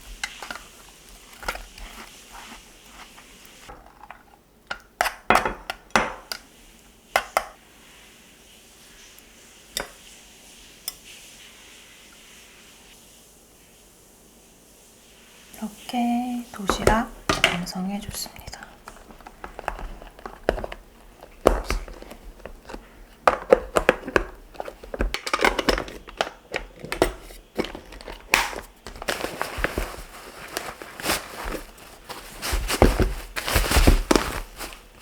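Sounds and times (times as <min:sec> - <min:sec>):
crinkly plastic rustling: 0:00.0 - 0:04.4, 0:16.4 - 0:35.0.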